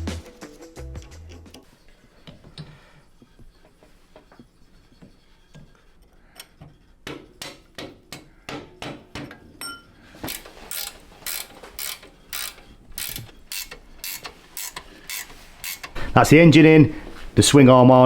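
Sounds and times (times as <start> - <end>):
ratchet wrench clicking: 10.3 - 16.0.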